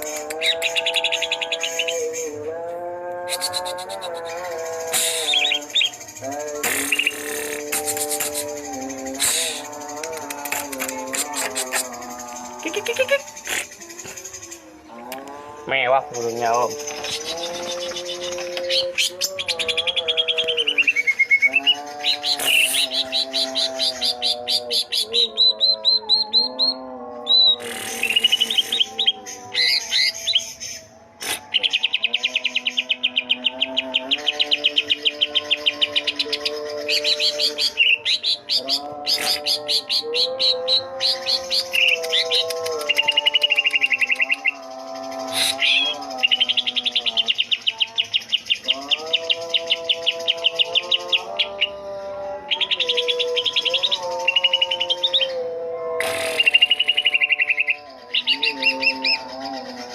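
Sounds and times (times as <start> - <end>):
birds singing and trilling: 0.0 - 59.9
bird calling sharp repeated notes: 3.3 - 12.0, 56.0 - 59.2.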